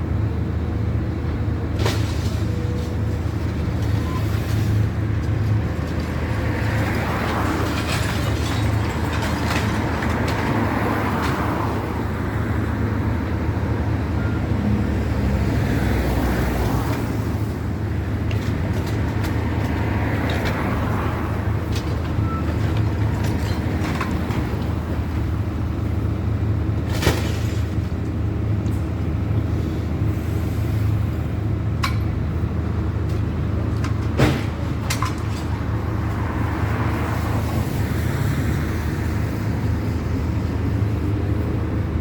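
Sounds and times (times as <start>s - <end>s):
knocks and clatter: 5.2s - 11.6s, 21.6s - 24.8s, 33.1s - 35.6s
heavy diesel engine droning: 20.2s - 42.0s.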